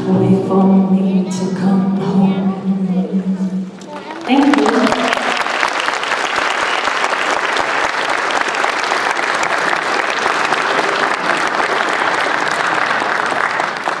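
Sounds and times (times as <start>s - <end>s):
audience applauding: 3.7s - 14.0s.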